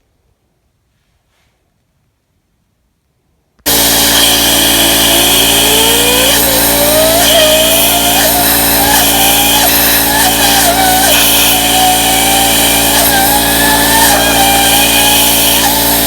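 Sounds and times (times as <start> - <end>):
engine running loud: 3.7 - 16.0.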